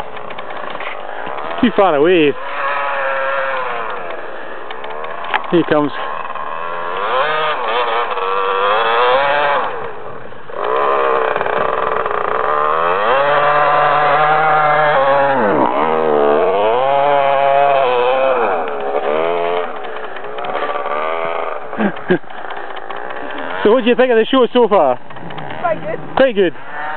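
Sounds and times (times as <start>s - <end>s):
dirt bike engine revving: 0.0s - 26.9s.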